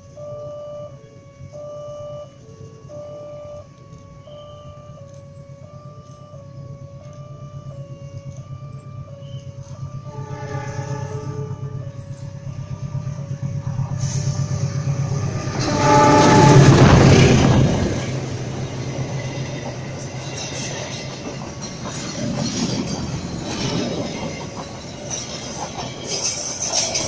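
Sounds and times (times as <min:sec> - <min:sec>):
train horn: 0:00.0 - 0:21.3
diesel locomotive engine drone: 0:00.0 - 0:27.0
train wheels clacking over rail joints: 0:14.8 - 0:27.0.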